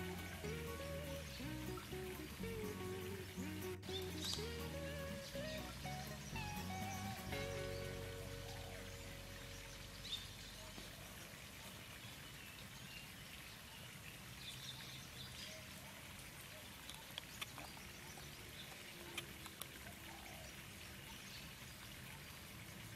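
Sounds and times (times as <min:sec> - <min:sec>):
bird chirps: 0:00.0 - 0:11.2.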